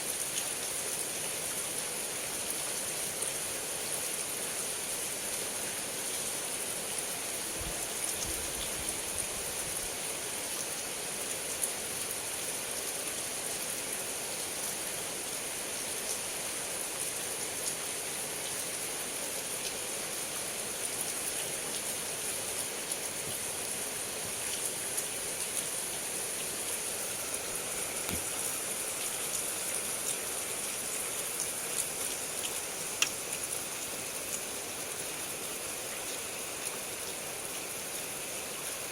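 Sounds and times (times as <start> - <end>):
heavy rain falling: 17.9 - 38.8
raindrops ticking: 31.7 - 33.5.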